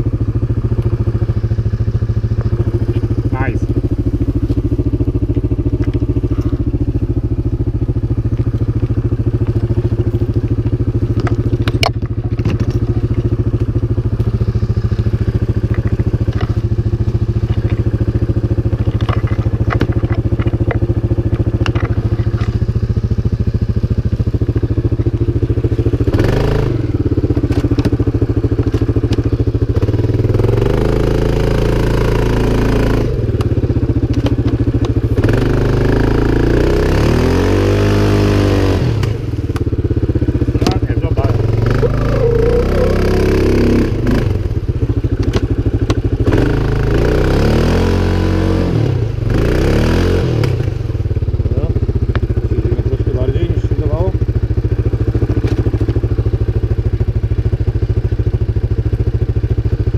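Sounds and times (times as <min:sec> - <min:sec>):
engine running and revving: 0:00.0 - 0:59.9
knocks and clatter: 0:18.8 - 0:22.6.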